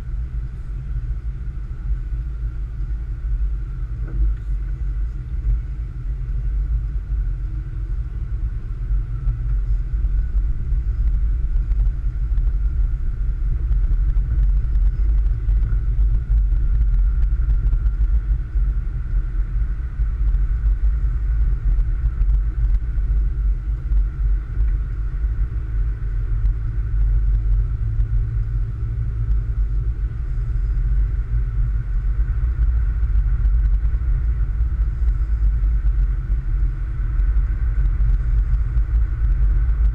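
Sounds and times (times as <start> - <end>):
car engine and road noise: 0.0 - 39.9
faint steady tones: 0.0 - 39.9.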